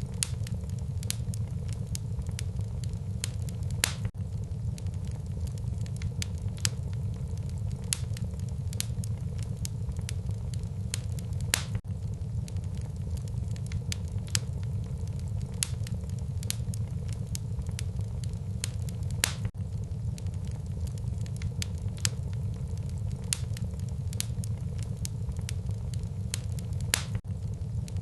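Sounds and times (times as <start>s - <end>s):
burning wood crackling and popping: 0.0s - 28.0s
fireplace flames rumbling: 0.0s - 28.0s.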